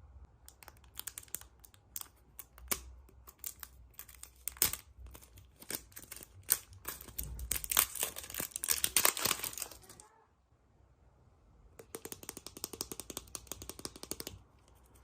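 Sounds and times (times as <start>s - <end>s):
wrapper crinkling and tearing: 0.7s - 10.0s.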